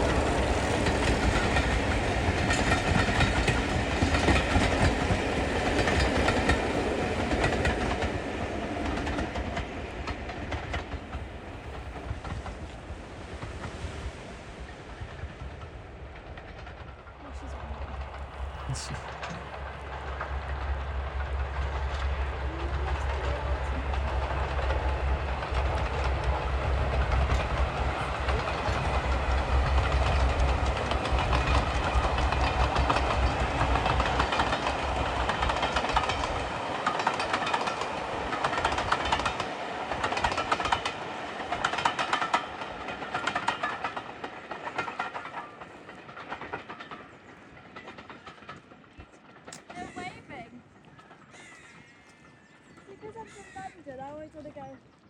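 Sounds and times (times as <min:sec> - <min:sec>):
diesel locomotive engine throb: 0:00.0 - 0:50.5
train wheels clacking over rail joints: 0:00.0 - 0:53.6.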